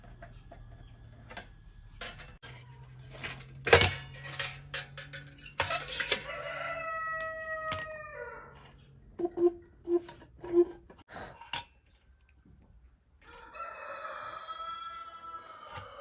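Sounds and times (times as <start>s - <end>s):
rooster crowing: 6.2s - 8.6s, 13.2s - 16.0s.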